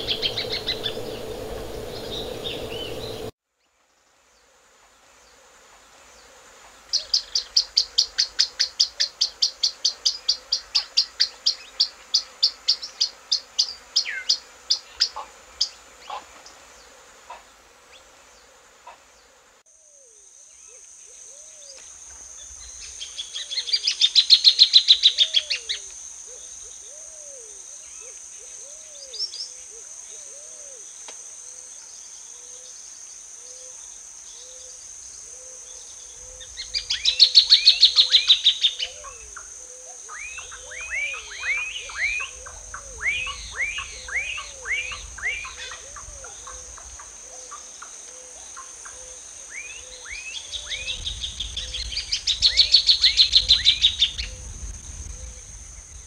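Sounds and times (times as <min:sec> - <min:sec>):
bird chattering: 0:00.0 - 0:03.3
low repeated animal call: 0:00.0 - 0:03.3
high insect drone: 0:00.0 - 0:03.4, 0:04.0 - 0:56.0.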